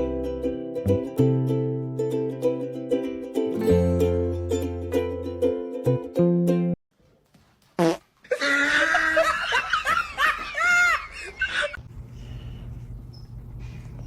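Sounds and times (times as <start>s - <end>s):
person laughing hard: 8.3s - 11.8s.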